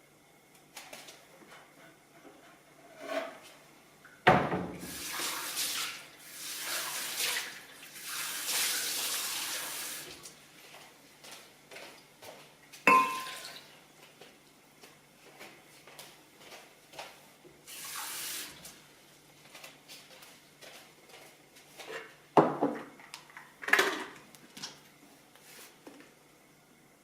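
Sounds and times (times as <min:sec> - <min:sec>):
tap water running: 0:04.6 - 0:10.4, 0:12.9 - 0:13.7, 0:17.6 - 0:18.8
ringing clink: 0:12.9 - 0:13.4.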